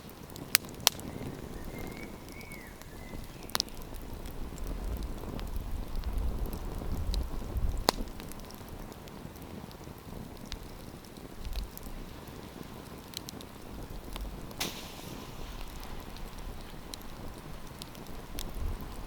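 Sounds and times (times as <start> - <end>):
wood campfire crackling: 0.0 - 19.0
sharp pop of fire: 7.8 - 8.3, 14.1 - 18.9
hissing flare: 14.4 - 18.9.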